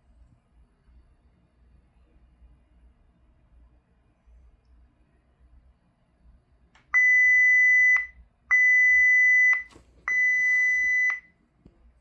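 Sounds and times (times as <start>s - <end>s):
high-pitched warning buzzer beeps: 7.0s - 11.2s.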